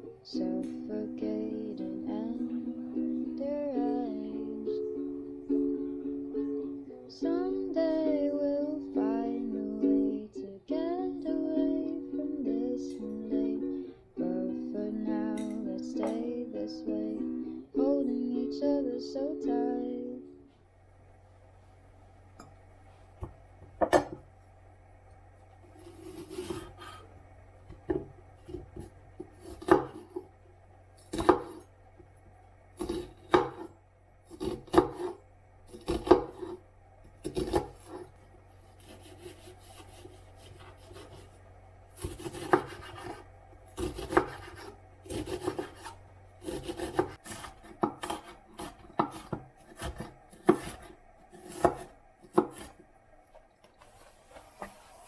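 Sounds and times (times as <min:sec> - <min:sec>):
knife chopping on wooden board: 0:23.2 - 0:24.2, 0:25.9 - 0:27.0, 0:27.7 - 0:30.2, 0:31.1 - 0:31.6, 0:32.8 - 0:33.7, 0:34.3 - 0:36.6, 0:37.2 - 0:38.1, 0:38.8 - 0:41.3, 0:42.0 - 0:43.2, 0:43.8 - 0:52.8.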